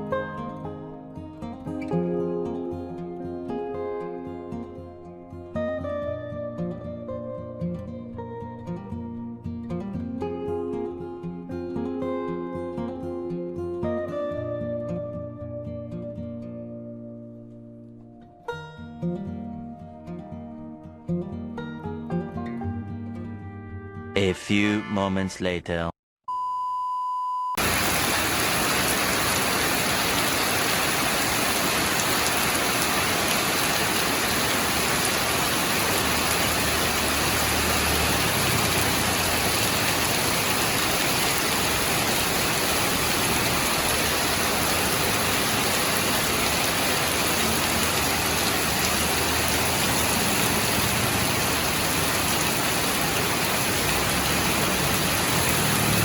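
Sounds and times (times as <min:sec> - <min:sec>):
heavy rain pattering: 0:27.6 - 0:56.0.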